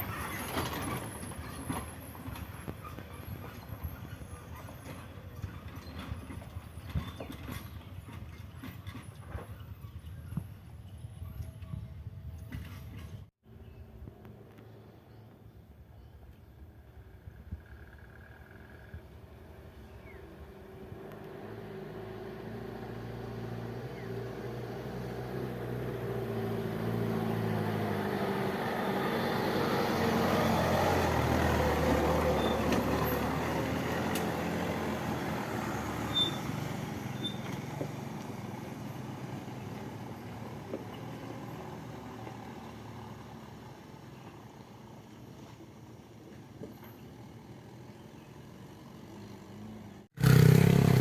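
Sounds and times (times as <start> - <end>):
heavy truck engine straining: 0.0 - 10.0, 25.9 - 43.4.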